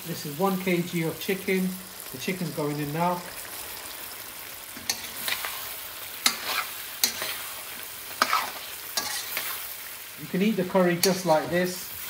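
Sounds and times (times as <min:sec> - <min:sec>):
chicken sizzling in oil: 0:00.0 - 0:12.0
metal clanks against pan: 0:09.0 - 0:09.3, 0:11.0 - 0:11.3.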